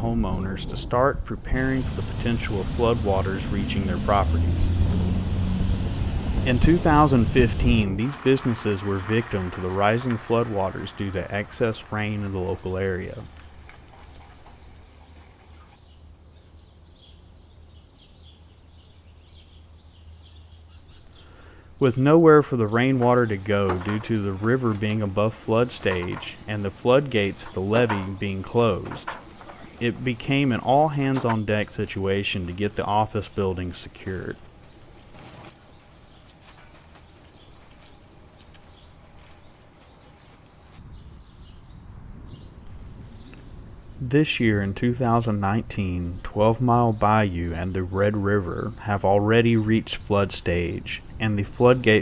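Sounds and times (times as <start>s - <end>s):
low steady rumble: 0.0s - 15.7s
songbird chirping: 1.8s - 52.0s.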